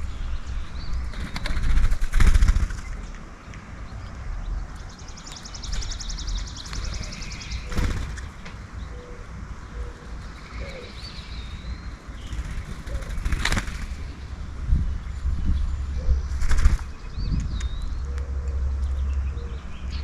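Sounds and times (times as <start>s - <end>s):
bird wing flutters: 1.1s - 3.0s, 7.6s - 8.3s, 12.2s - 14.1s, 16.4s - 16.9s
dove cooing: 8.9s - 11.0s, 12.6s - 13.3s.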